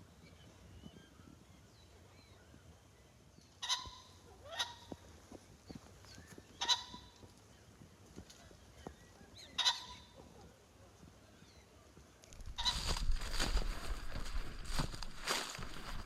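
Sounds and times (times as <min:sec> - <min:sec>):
small birds chirping: 0:00.0 - 0:16.0
game bird honking calls: 0:12.5 - 0:13.0.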